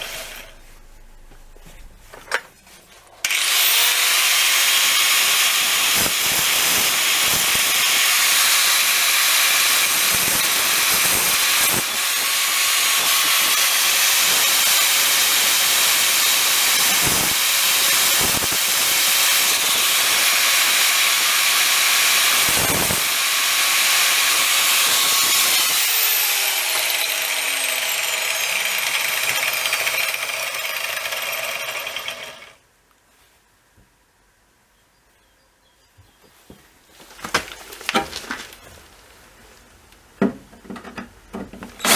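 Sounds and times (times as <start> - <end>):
grinder grinding drill bit: 0.0 - 0.6, 3.2 - 32.6.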